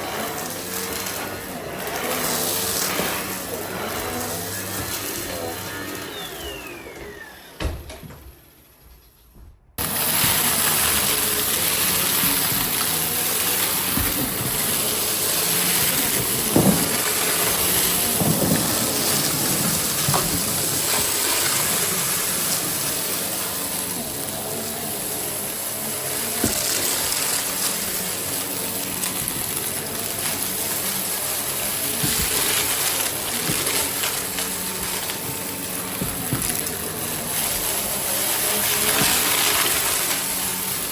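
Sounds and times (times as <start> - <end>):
vacuum cleaner running with whine: 0.0 - 8.8, 9.8 - 40.9.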